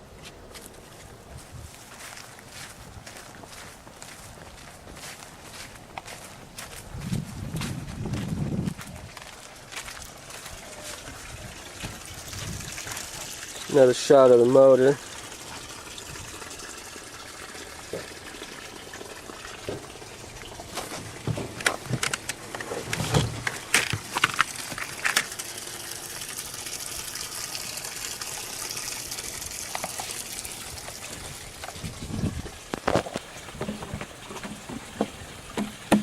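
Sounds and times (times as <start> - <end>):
water gushing and splashing: 10.1 - 36.0
sharp knocks: 33.5 - 36.0.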